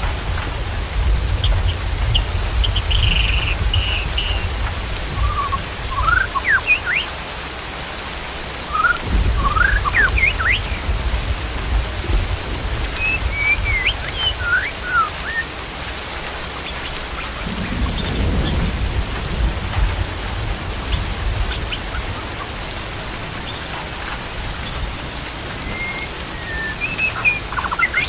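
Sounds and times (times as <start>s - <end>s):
steady rain: 0.0s - 28.0s
small birds chirping: 1.3s - 4.6s, 5.2s - 7.1s, 8.7s - 10.9s, 12.2s - 15.6s, 16.4s - 18.9s, 20.7s - 28.0s.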